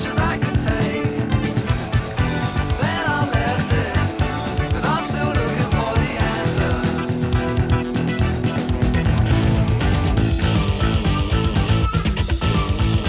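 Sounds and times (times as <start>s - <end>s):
blues-rock music: 0.0s - 13.0s
lead electric guitar bending notes: 6.2s - 13.0s.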